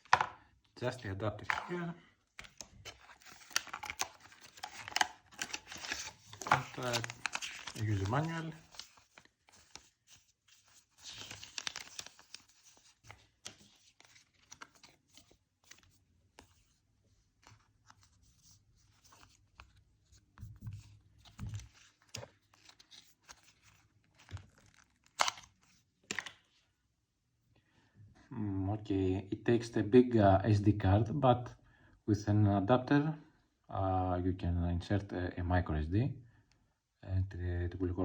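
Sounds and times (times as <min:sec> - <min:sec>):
paper rustling and crinkling: 0:01.4 - 0:26.5.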